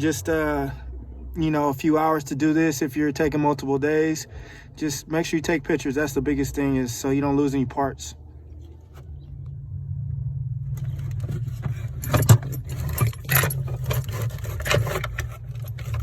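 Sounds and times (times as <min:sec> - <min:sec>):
steady low hum: 0:00.0 - 0:16.0
small metal objects clinking: 0:10.8 - 0:16.0.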